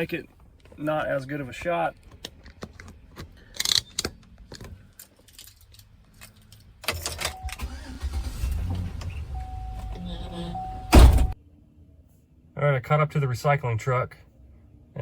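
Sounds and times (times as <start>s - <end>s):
truck engine starting and idling: 6.8s - 11.4s.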